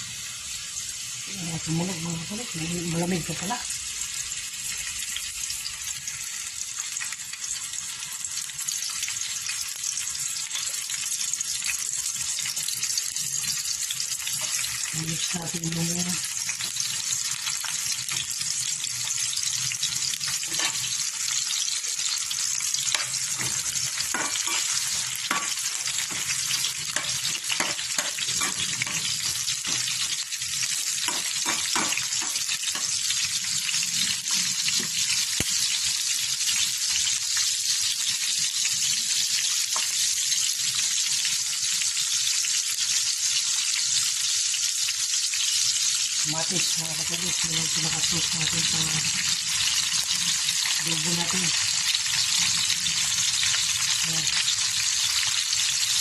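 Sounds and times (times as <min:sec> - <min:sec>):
garlic sizzling in oil: 0:00.0 - 0:56.0
spatula scraping and tapping pan: 0:20.4 - 0:20.9, 0:22.9 - 0:30.2, 0:31.0 - 0:33.0.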